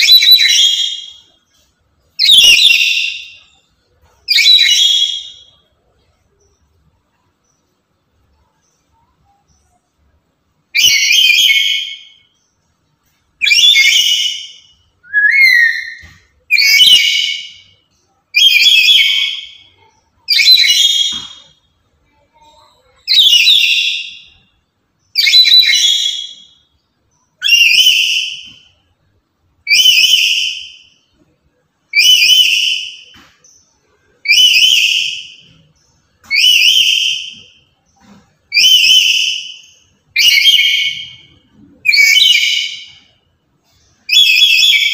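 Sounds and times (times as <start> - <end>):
parrot calling shrilly: 0.0 - 1.2, 2.2 - 3.4, 10.8 - 12.2, 13.4 - 17.7, 18.4 - 21.5, 23.1 - 24.3, 25.2 - 26.6, 27.4 - 28.6, 29.7 - 30.8, 31.9 - 33.1, 34.2 - 35.4, 36.2 - 37.5, 38.5 - 43.0, 44.1 - 44.9.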